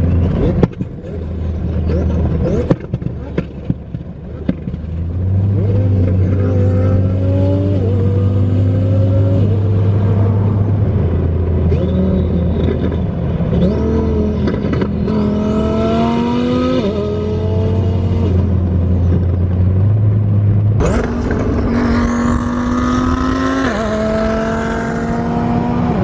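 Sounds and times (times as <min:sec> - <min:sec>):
car engine revving: 0:00.0 - 0:26.0
high rising whine: 0:20.8 - 0:26.0.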